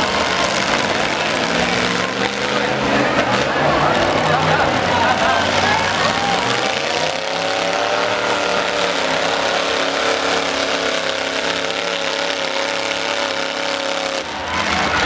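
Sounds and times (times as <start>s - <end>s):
truck engines running loudly: 0.0s - 15.0s.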